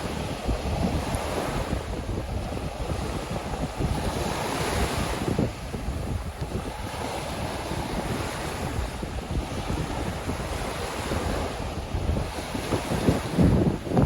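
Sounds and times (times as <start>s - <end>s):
waves washing onto beach: 0.0s - 14.0s
wind buffeting microphone: 0.0s - 14.0s.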